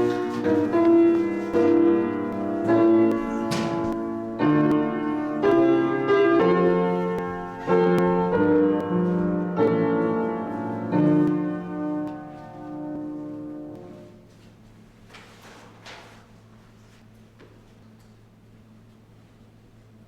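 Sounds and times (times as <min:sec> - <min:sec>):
piano playing slow chords: 0:00.0 - 0:14.4.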